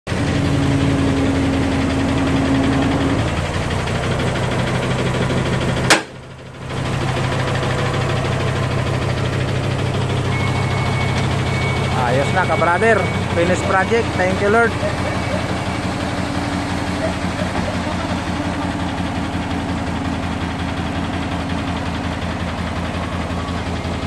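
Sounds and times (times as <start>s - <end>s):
diesel truck engine running: 0.1s - 24.0s
sharp click: 5.9s - 6.2s.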